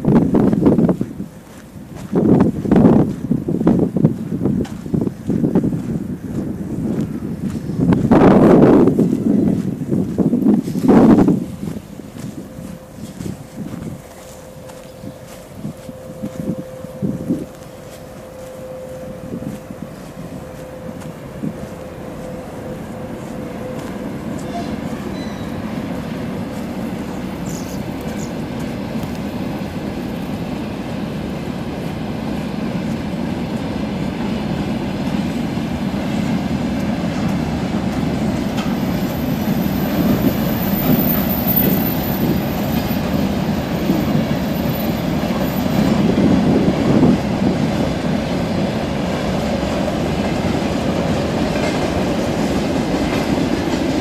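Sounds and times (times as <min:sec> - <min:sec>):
freight train wheels rumbling: 0:00.0 - 0:54.0
high wheel squeal: 0:11.0 - 0:28.6, 0:38.2 - 0:46.3.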